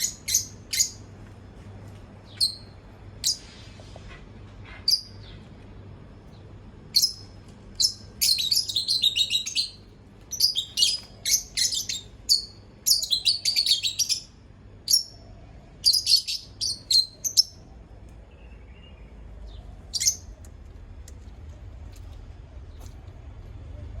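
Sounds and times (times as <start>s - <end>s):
bird chirping: 2.3s - 3.5s, 6.3s - 14.3s, 15.8s - 17.6s, 18.3s - 20.3s.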